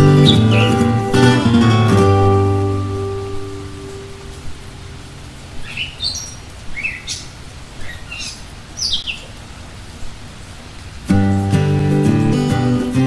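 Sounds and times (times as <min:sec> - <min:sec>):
small birds chirping: 0:00.0 - 0:10.2
low steady hum: 0:00.0 - 0:11.0.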